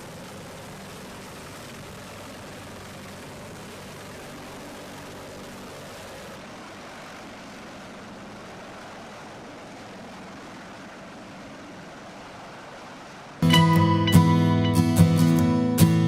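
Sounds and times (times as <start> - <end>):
faint aircraft engine hum: 0.0 - 16.0.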